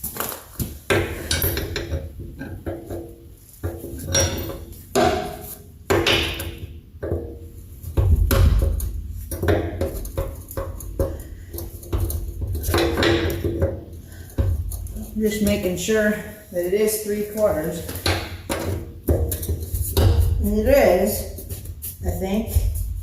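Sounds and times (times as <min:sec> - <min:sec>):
wrenches clinking against metal: 0:01.2 - 0:07.2.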